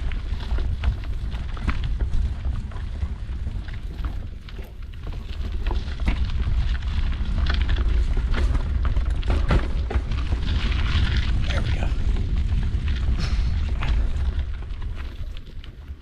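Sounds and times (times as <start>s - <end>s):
bike clicks and rattles: 0.0s - 16.0s
wind buffeting microphone: 0.0s - 16.0s.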